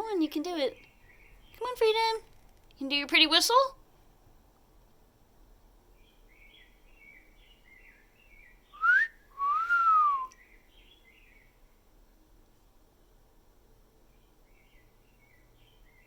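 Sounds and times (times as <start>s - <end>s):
faint songbird chirping: 0.0s - 3.7s, 5.2s - 16.0s
person wolf whistling: 8.8s - 10.4s.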